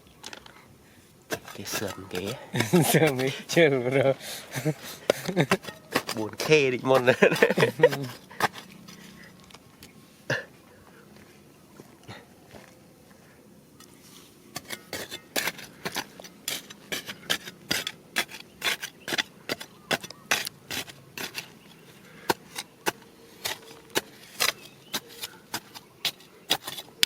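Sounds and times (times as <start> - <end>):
stones and gravel clicking and scraping: 1.3 - 3.7, 5.0 - 10.0, 13.8 - 27.0.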